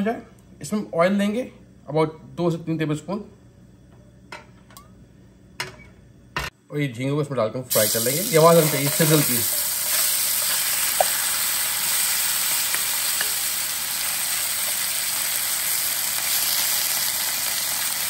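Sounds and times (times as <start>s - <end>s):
prawns sizzling in hot oil: 7.7s - 18.0s.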